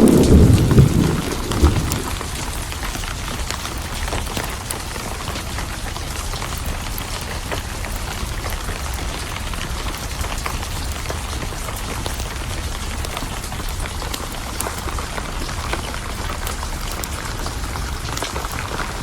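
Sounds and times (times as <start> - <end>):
low thunder rumble: 0.0 - 4.2
steady rain: 0.0 - 19.0.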